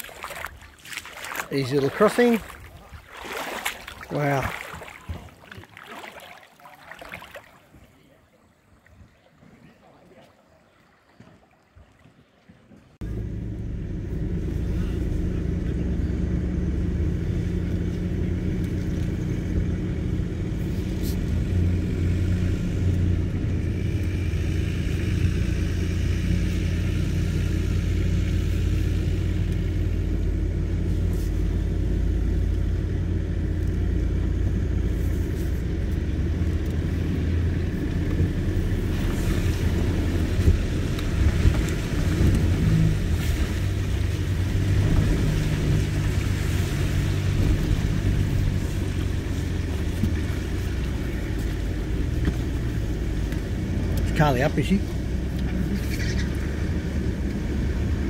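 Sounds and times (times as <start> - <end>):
engine running at low revs: 13.0 - 58.0.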